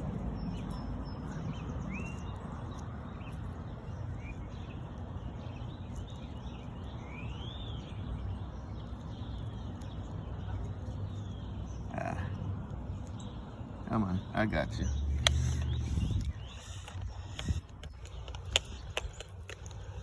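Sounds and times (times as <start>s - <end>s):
bird chirps: 0.0s - 20.0s
low background rumble: 5.6s - 20.0s.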